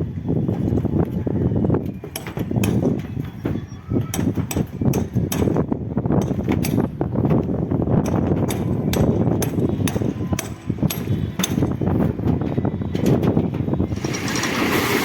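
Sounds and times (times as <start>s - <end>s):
clanks and knocks of churning drum: 1.8s - 15.0s
concrete mixer rumbling: 5.6s - 15.0s.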